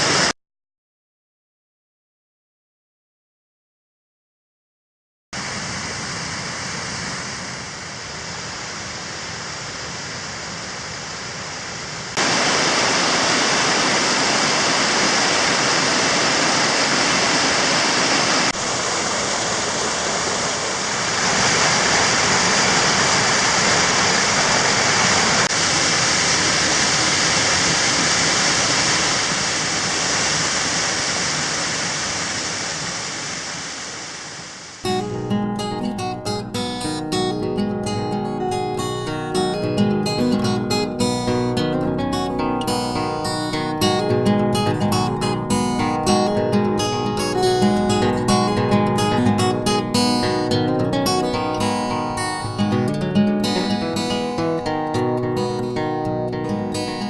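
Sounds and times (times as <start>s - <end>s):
water rushing over rocks: 5.4s - 34.9s.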